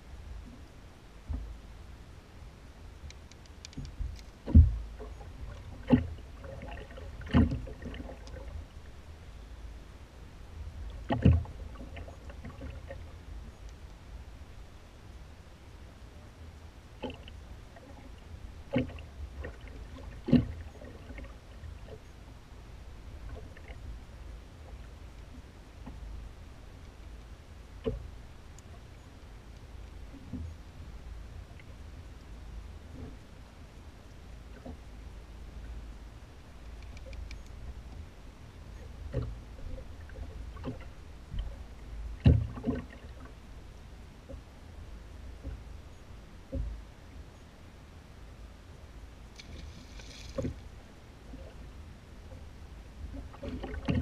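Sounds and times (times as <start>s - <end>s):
low rumble of wind and water: 0.0s - 54.0s
knocks and clunks in a boat: 0.4s - 1.6s, 3.1s - 9.0s, 10.7s - 13.9s, 17.0s - 22.3s, 23.1s - 32.0s, 32.9s - 33.4s, 34.4s - 43.5s, 44.2s - 44.5s, 45.2s - 46.9s, 49.3s - 54.0s
knocks and thumps on boat: 3.8s - 8.2s, 11.0s - 13.0s, 18.7s - 21.3s, 42.2s - 43.3s, 53.1s - 54.0s.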